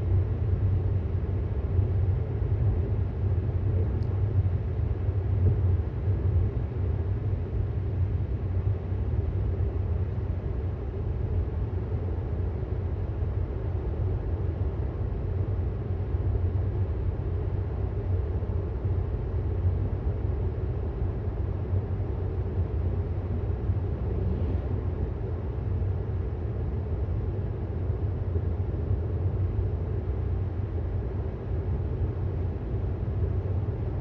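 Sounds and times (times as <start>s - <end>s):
road and tyre rumble: 21.9s - 27.7s.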